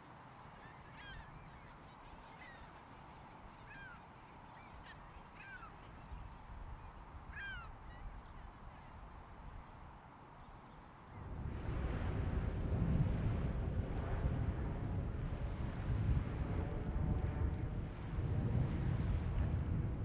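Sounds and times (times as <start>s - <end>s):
low steady rumble: 11.2s - 20.0s.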